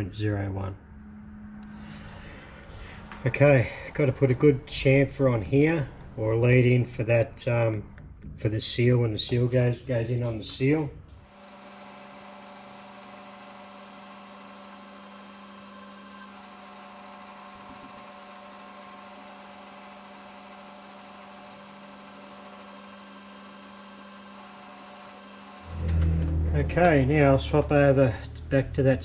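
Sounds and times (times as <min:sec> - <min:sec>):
metal lathe humming: 0:11.2 - 0:28.2.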